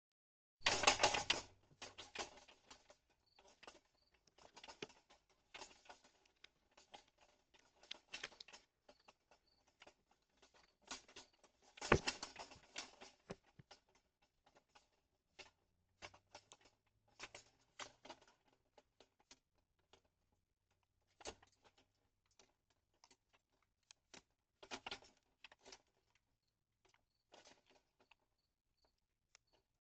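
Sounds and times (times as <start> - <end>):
raccoon rummaging at feeder: 0.6 - 15.4.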